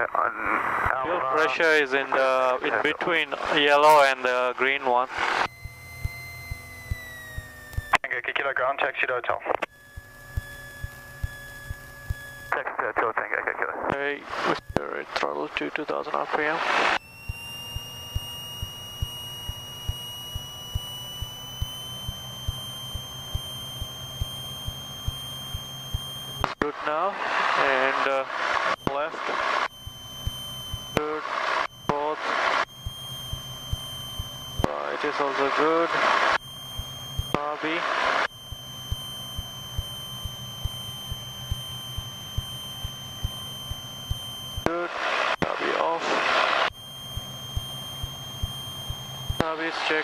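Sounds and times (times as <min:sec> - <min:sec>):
high electrical whine: 0:00.0 - 0:50.0
low hum: 0:00.0 - 0:50.0
faint interference ticks: 0:05.4 - 0:08.0, 0:09.5 - 0:12.6, 0:17.3 - 0:26.6
faint low ticks: 0:09.7 - 0:12.3
aircraft engine running up: 0:16.6 - 0:26.5, 0:27.1 - 0:45.4.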